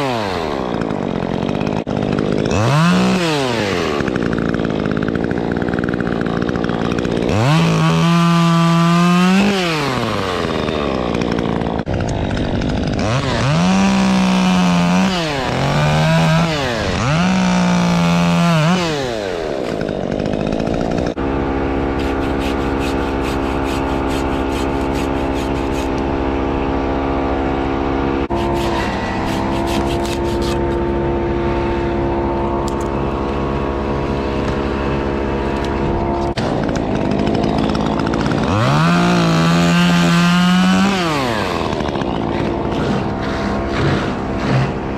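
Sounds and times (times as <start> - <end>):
chainsaw revving: 0.0 - 44.9
steady engine drone: 20.8 - 44.9.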